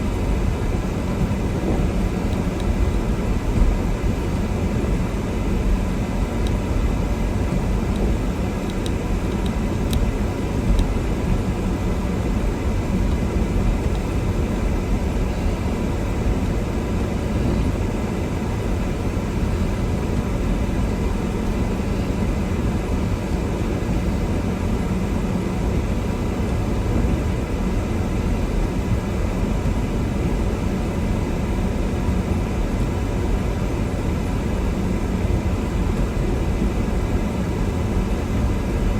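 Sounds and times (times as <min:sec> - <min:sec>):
car driving on snowy road: 0:00.0 - 0:38.9.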